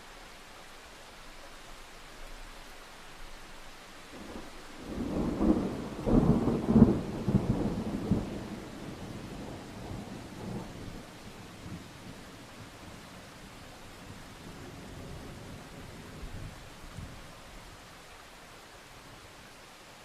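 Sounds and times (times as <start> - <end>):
steady rain: 0.0 - 20.0
thunder rumbling and cracking: 4.2 - 12.8.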